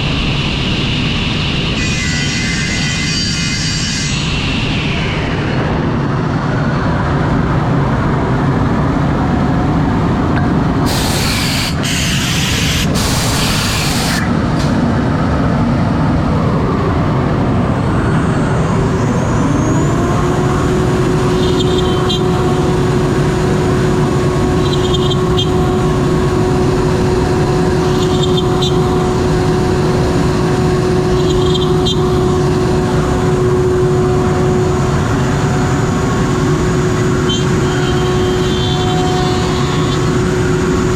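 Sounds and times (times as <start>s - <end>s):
cnc router running: 0.0s - 40.9s
spindle whine: 0.0s - 40.9s
compressed air hiss: 10.8s - 14.8s.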